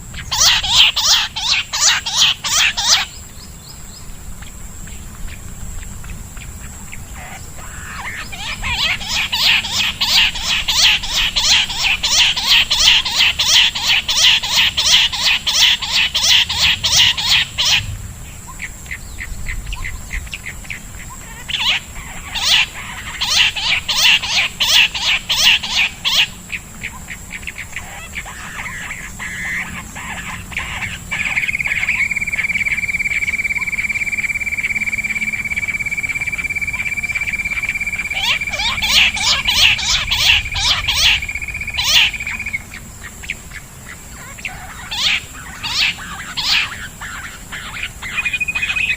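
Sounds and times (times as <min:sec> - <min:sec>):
bird calls with sharp repeated notes: 0:00.0 - 0:48.9
steady high tone: 0:30.5 - 0:42.7.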